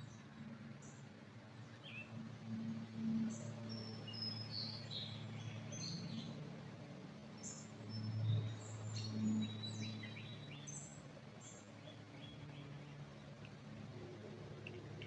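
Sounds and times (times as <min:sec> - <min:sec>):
forest birds chirping: 0:03.3 - 0:06.4, 0:07.3 - 0:13.6.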